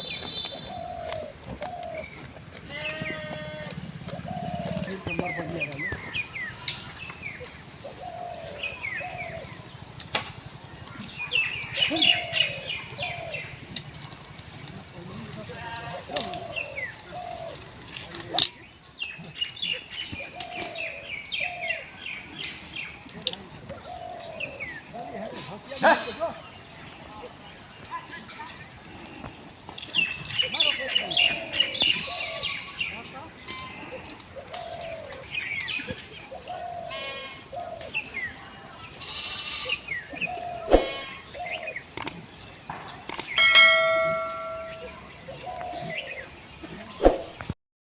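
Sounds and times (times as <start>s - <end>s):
birds chirping: 39.8s - 46.2s
sharp clicks: 42.0s - 42.2s, 43.1s - 43.4s
sharp click: 43.1s - 44.9s
bell ding: 43.3s - 45.0s.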